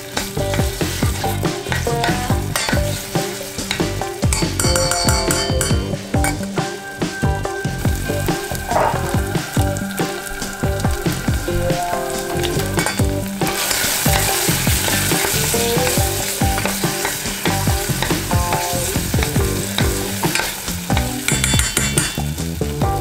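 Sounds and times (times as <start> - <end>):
spoon stirring in saucepan: 0.0 - 6.6, 11.9 - 22.3
paste sizzling in oil: 0.0 - 22.8.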